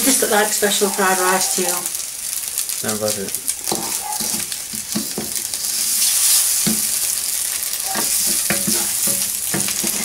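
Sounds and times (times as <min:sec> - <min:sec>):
rice sizzling in a wok: 0:00.0 - 0:10.0
wooden spoon scraping a pan: 0:03.6 - 0:07.0, 0:07.8 - 0:10.0.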